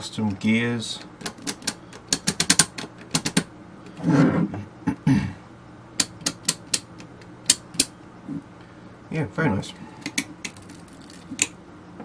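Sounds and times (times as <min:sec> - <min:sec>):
rotary knob clicking: 0:01.2 - 0:03.4.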